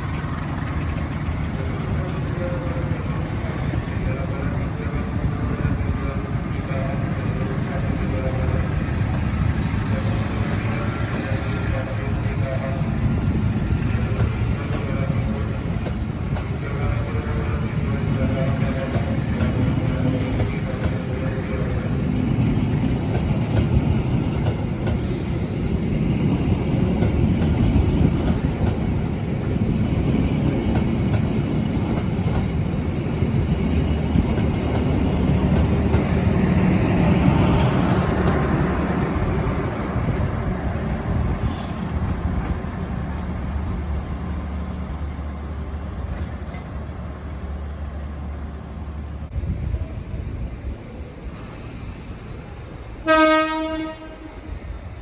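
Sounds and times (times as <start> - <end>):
train rumbling: 0.0 - 55.0.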